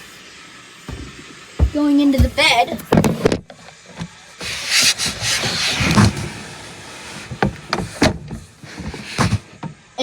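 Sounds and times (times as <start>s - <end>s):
heavy knock: 0.9s - 3.1s
thumps and scuffing: 0.9s - 6.3s, 7.2s - 9.6s.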